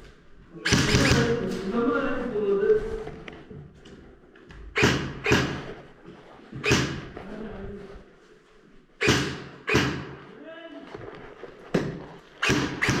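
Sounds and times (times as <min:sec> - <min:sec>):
airsoft gun shots: 0:00.6 - 0:01.4, 0:04.8 - 0:05.7, 0:06.6 - 0:07.0, 0:09.0 - 0:10.2, 0:12.4 - 0:13.0.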